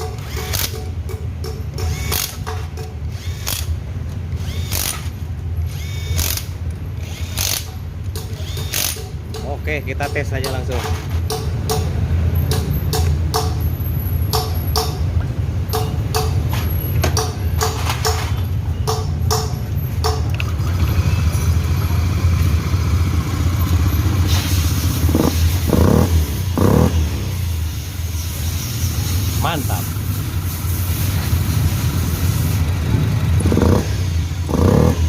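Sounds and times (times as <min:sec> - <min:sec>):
scooter engine running: 0:25.0 - 0:27.4, 0:31.3 - 0:35.0.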